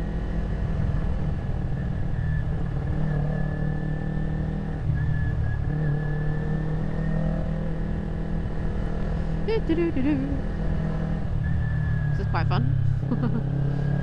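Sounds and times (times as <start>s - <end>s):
motorcycle engine running at low revs: 0.0s - 14.0s.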